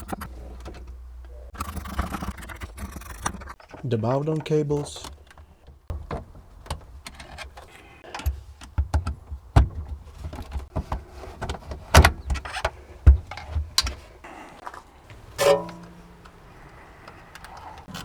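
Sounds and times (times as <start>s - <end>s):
tools and metal parts clicking: 15.3s - 16.4s.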